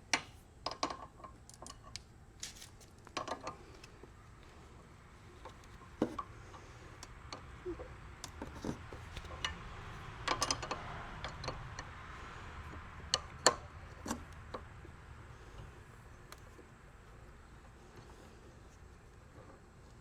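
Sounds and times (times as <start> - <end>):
wrench clicking on metal: 10.3 - 11.9.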